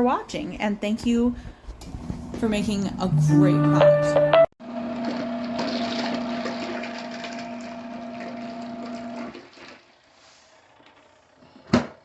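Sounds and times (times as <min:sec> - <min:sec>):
washer motor humming: 0:01.9 - 0:09.9
water churning in a tub: 0:05.0 - 0:10.8.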